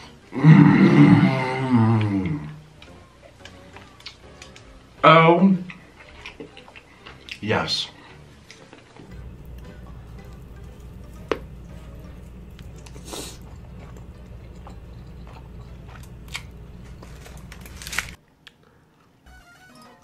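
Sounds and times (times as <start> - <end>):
biting and chewing with mouth clicks: 8.5 - 18.7
steady low hum: 9.1 - 18.2.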